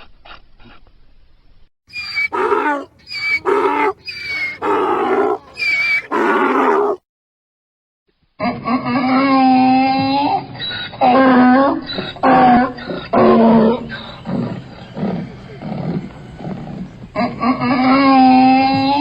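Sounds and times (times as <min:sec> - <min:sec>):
donkey braying: 0:01.9 - 0:07.0.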